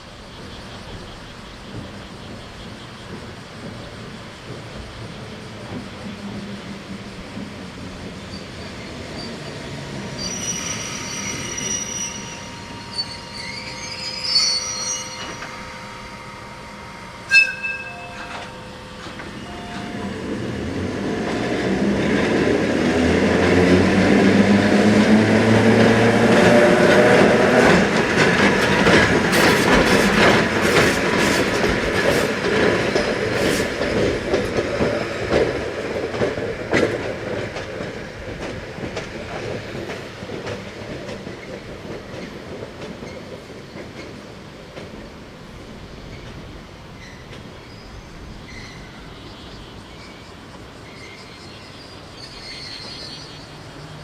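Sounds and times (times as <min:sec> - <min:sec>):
train wheel squeal: 0:00.4 - 0:21.4, 0:24.6 - 0:35.6, 0:45.8 - 0:54.0
train engine accelerating: 0:02.6 - 0:40.9
train horn: 0:11.2 - 0:20.4
wheels clacking over rail joints: 0:17.5 - 0:47.6.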